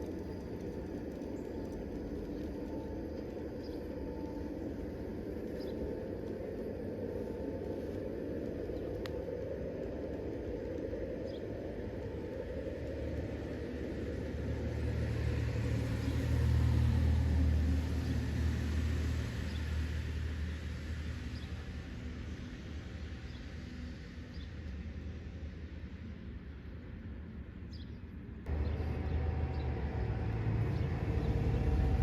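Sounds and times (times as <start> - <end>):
outdoor background noise: 0.0 - 32.0
heavy low rumble rolling past: 28.4 - 32.0.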